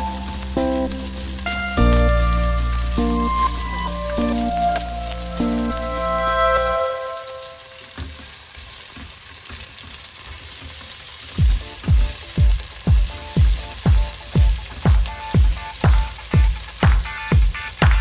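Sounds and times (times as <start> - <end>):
onions sizzling in oil: 0.0 - 17.8
music with heavy kick drum: 11.4 - 18.0.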